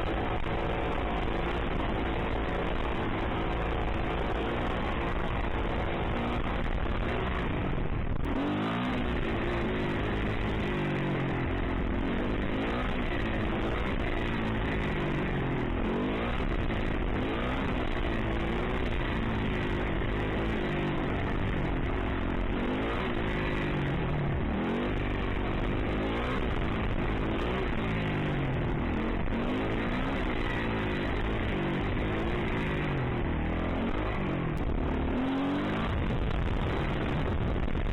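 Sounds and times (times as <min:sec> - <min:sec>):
dirt bike engine revving: 0:00.0 - 0:37.3.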